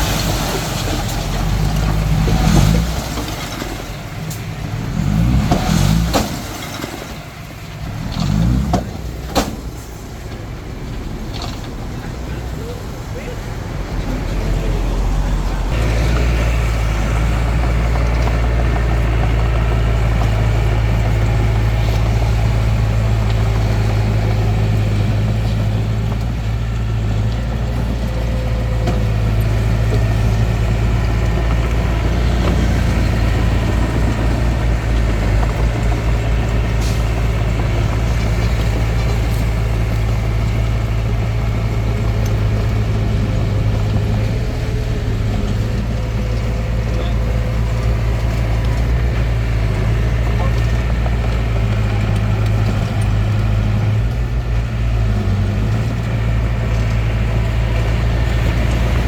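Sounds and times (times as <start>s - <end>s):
diesel engine humming: 0.0s - 59.0s.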